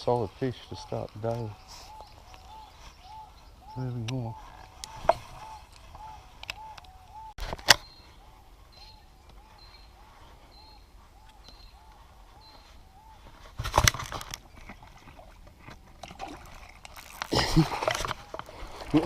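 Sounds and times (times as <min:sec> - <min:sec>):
bird calling: 0:00.0 - 0:13.6.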